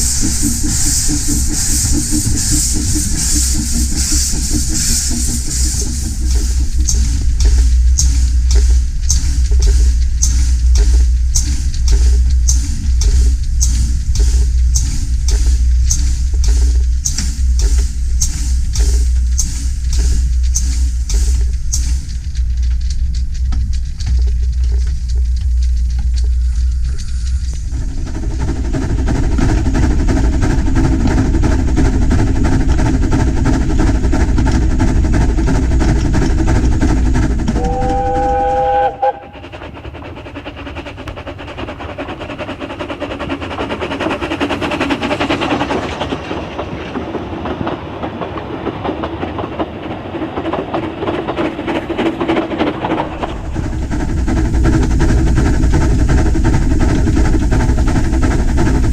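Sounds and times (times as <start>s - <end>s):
rhythmic train clatter: 0.0s - 58.9s
steam train rumbling: 0.0s - 58.9s
steam whistle blowing: 37.6s - 39.4s.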